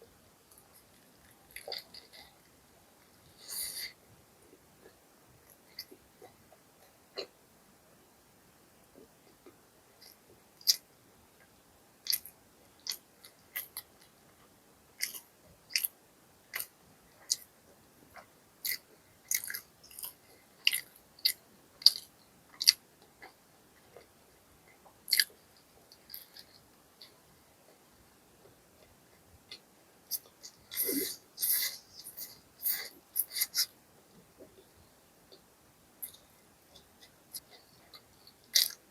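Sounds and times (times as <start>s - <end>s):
crunchy chewing: 0.5s - 4.0s, 9.0s - 10.9s, 12.0s - 14.4s, 15.0s - 17.5s, 18.1s - 24.1s, 24.7s - 27.9s, 29.5s - 33.8s, 36.0s - 38.9s
wet mouth clicks: 12.1s - 13.0s, 29.5s - 33.7s.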